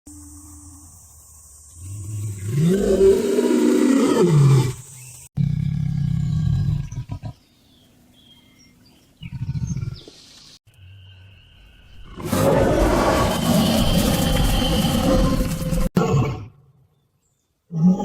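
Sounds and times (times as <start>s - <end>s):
tiger roaring: 12.1s - 16.6s.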